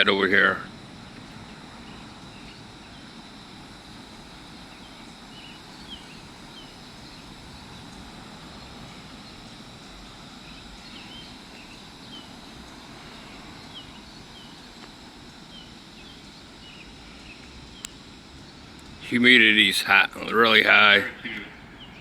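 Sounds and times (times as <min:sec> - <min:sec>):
outdoor background noise: 0:00.0 - 0:22.0
bird chirping: 0:01.4 - 0:03.4, 0:04.0 - 0:18.0.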